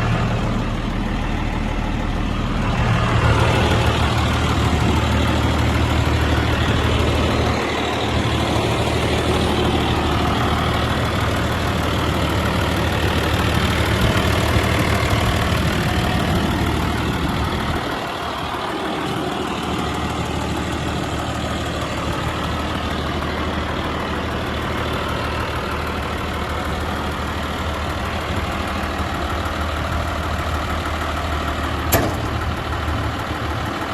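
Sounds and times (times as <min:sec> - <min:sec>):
tractor diesel engine idling: 0:00.0 - 0:33.9
sharp click: 0:31.9 - 0:32.4.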